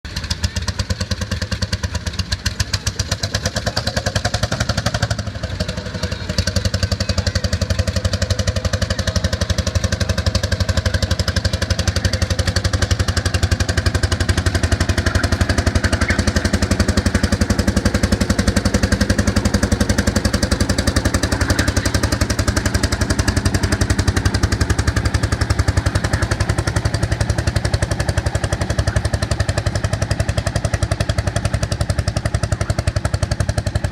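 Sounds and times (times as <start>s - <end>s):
tractor engine under load: 0.0s - 33.9s.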